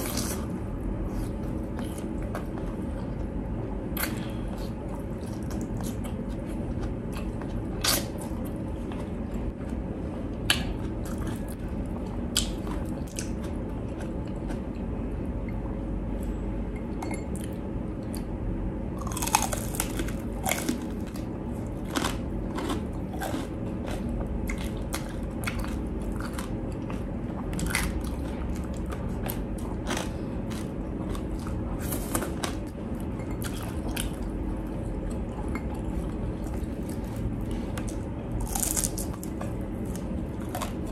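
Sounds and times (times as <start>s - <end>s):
crunching crispy pork skin: 19.0s - 21.2s, 36.9s - 40.9s.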